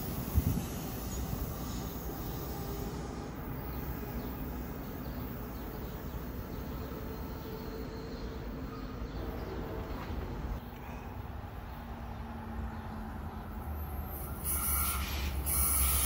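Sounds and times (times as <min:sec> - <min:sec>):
train wheels rumbling on rail: 0:00.0 - 0:10.7.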